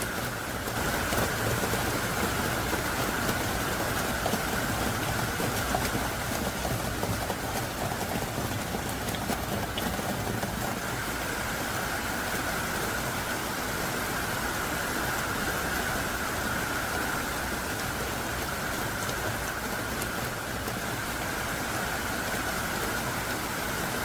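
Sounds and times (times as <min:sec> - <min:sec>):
heavy rain: 0:00.0 - 0:24.0.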